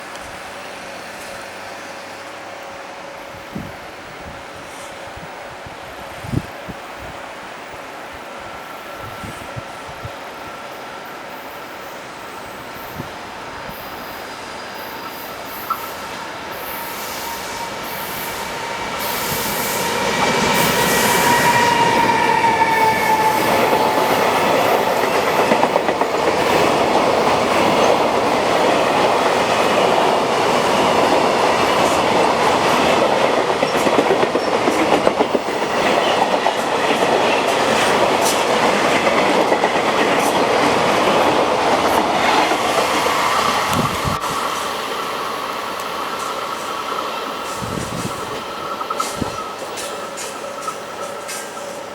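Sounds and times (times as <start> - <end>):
locomotive high tone: 10.4 - 37.5
wagons rumbling over rails: 12.4 - 51.9.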